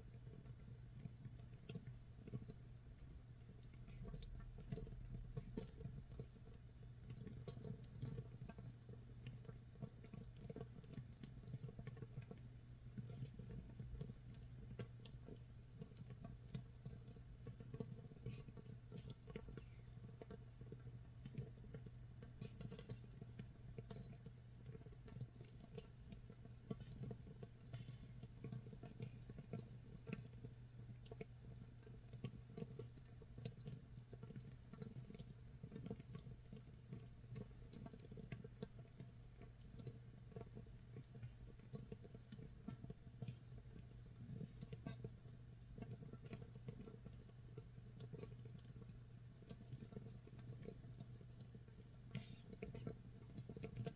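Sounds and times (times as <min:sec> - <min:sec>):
tiny bubbles fizzing and popping: 0:00.0 - 0:53.9.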